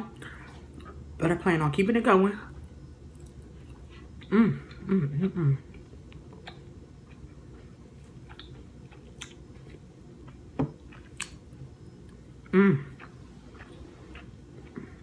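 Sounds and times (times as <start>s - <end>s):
close-up chewing: 5.6s - 11.4s, 12.9s - 15.0s.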